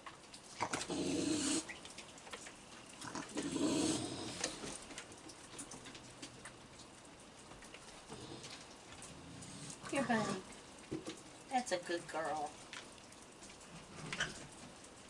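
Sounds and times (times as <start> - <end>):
raccoons vocalizing harshly: 0.6 - 1.8.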